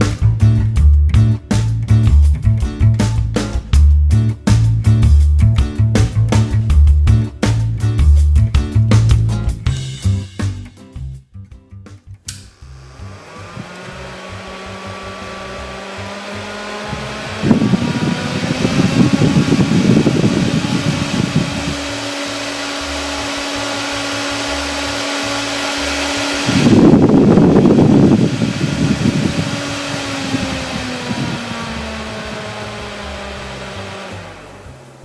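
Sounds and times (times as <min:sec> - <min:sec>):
small fan motor whine: 0:12.5 - 0:35.0
rush of air noise: 0:12.6 - 0:35.0.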